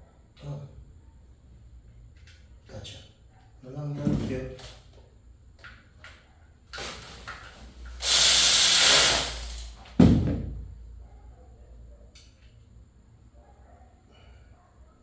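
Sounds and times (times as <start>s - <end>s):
pressurised gas hissing: 7.9s - 9.7s.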